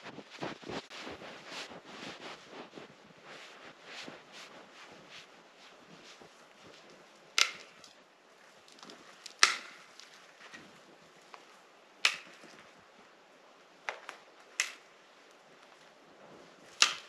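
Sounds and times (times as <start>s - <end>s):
wood being chopped: 7.4s - 7.9s, 8.8s - 10.1s, 12.0s - 12.6s, 13.9s - 14.9s, 16.7s - 17.0s.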